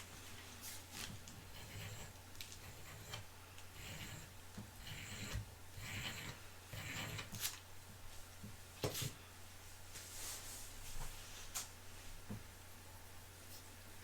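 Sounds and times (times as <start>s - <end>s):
low electrical hum: 0.0s - 14.0s
rustling and scraping swishes: 9.8s - 12.2s.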